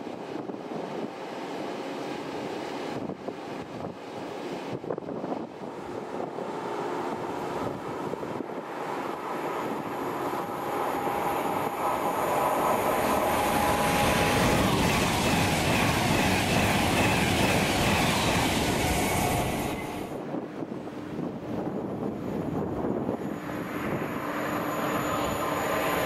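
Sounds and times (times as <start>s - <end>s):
train wheels rumbling on rails: 4.8s - 26.0s
steady high-pitched tones: 5.9s - 20.2s, 22.4s - 26.0s.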